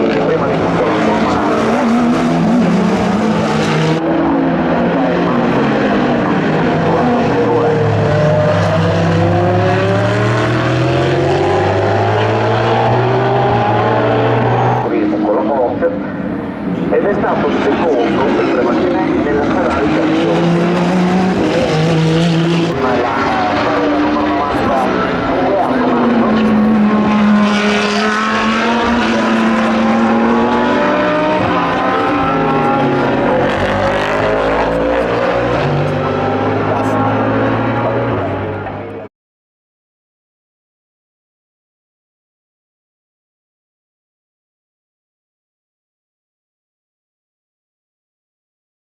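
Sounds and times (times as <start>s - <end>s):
race car engines accelerating: 0.0s - 39.1s.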